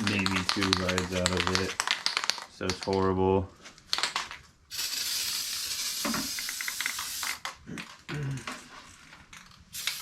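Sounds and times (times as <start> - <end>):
aerosol can spraying: 4.7 - 7.4, 9.8 - 10.0.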